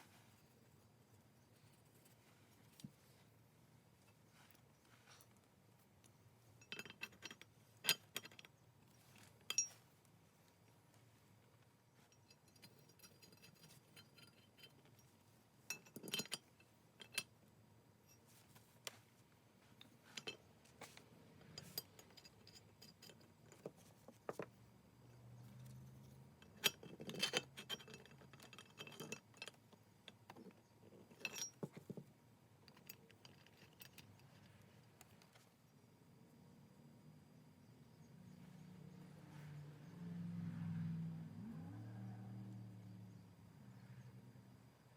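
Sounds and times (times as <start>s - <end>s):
metal plane parts clinking: 6.6s - 9.8s, 12.1s - 17.3s, 21.4s - 24.5s, 25.4s - 32.0s.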